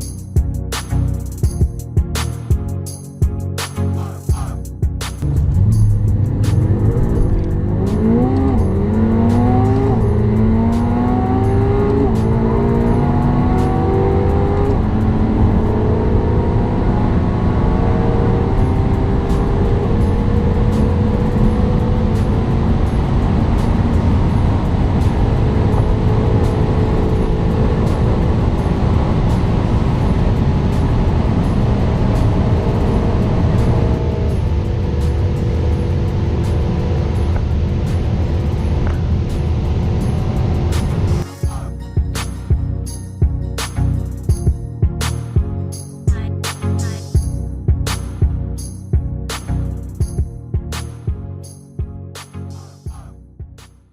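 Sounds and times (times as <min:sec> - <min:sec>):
music with steady beat: 0:00.0 - 0:15.8, 0:18.4 - 0:53.9
car engine accelerating through gears: 0:05.2 - 0:41.3.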